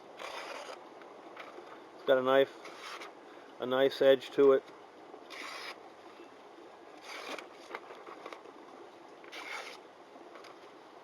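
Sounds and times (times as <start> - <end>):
knife cutting paper: 0.2 - 0.8, 5.3 - 5.8, 7.0 - 7.7, 9.3 - 9.8.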